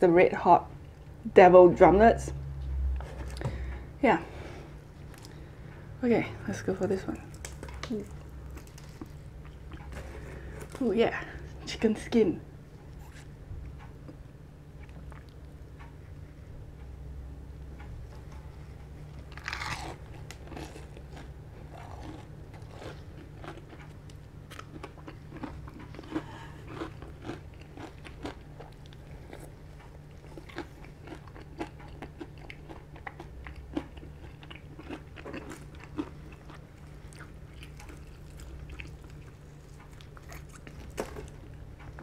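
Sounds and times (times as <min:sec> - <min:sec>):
chewing with crisp crunches: 0:06.8 - 0:11.6, 0:12.8 - 0:16.9, 0:17.8 - 0:42.0.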